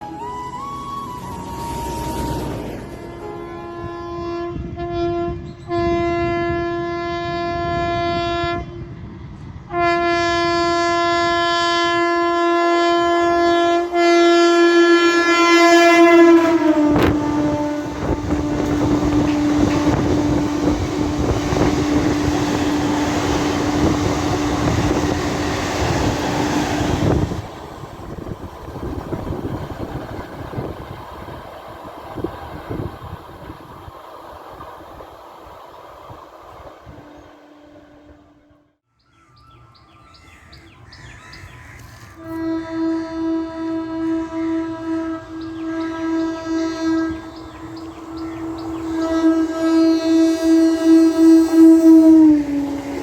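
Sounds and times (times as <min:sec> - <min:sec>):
train passing with rail rumble: 0:00.0 - 0:53.0
birds chirping: 0:35.4 - 0:38.2, 0:38.9 - 0:42.3, 0:44.2 - 0:50.0.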